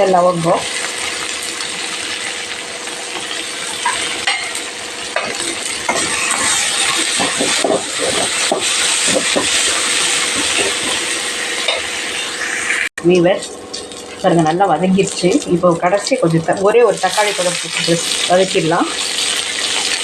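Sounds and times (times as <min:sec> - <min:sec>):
food sizzling in hot oil: 0:00.0 - 0:20.0
spatula scraping a pan: 0:05.2 - 0:12.8.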